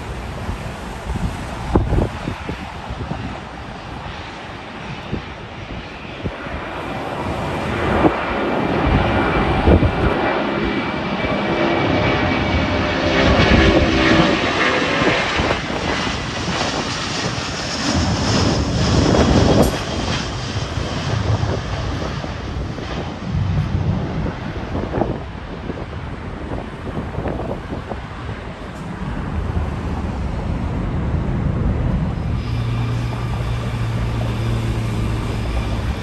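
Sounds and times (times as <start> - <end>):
airliner engine noise: 0.0 - 36.0
wind buffeting microphone: 0.0 - 36.0
faint high whine: 31.9 - 36.0.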